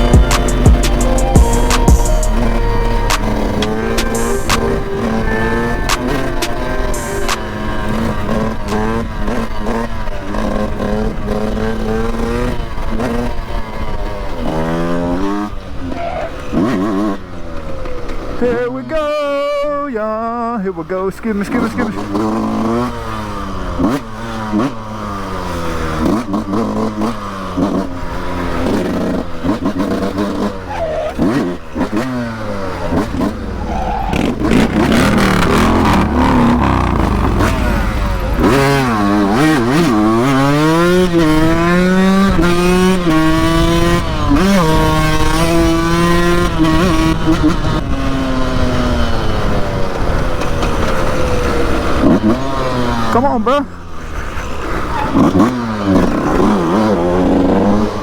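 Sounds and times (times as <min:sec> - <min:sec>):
motorcycle engine revving through gears: 0:00.0 - 0:58.0
low wind rush: 0:31.5 - 0:51.5.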